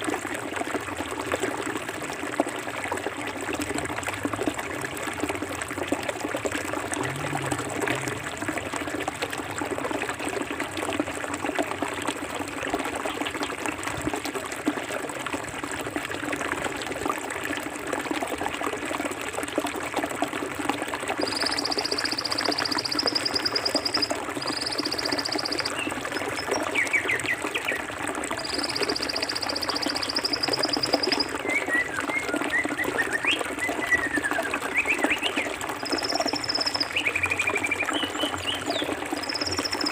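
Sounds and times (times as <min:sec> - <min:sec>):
river flowing over stones: 0:00.0 - 0:39.9
bird chirps: 0:21.2 - 0:27.2, 0:28.4 - 0:31.9, 0:34.8 - 0:39.9.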